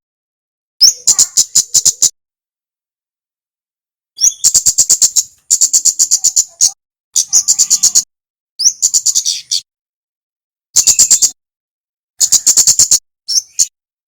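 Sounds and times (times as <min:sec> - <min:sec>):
bird song high ticking notes: 0:04.2 - 0:09.7, 0:10.8 - 0:11.4, 0:12.2 - 0:13.7.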